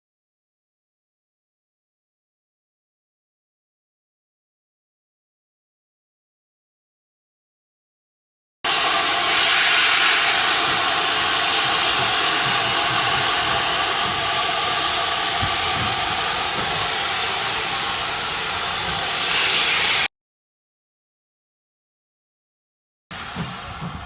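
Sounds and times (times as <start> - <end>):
steam locomotive hissing: 8.7 - 20.1, 23.1 - 24.0.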